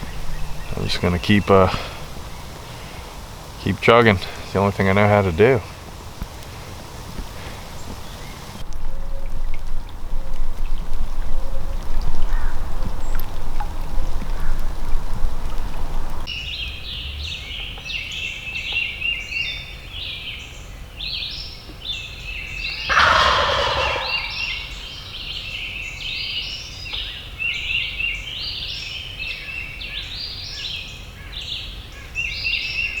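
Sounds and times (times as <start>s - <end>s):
turkey gobbling: 0.0s - 8.6s, 22.8s - 24.9s
small birds chirping: 0.0s - 33.0s.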